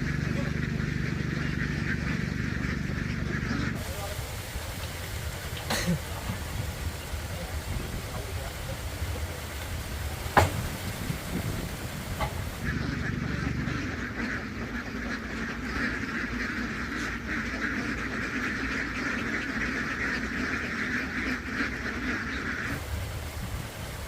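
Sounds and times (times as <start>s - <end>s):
flock of ducks quacking: 0.0s - 24.0s.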